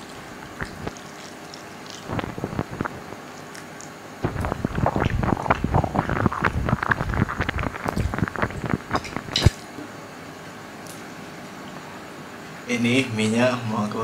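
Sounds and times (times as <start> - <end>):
wet chewing of noodles: 0.0 - 9.5.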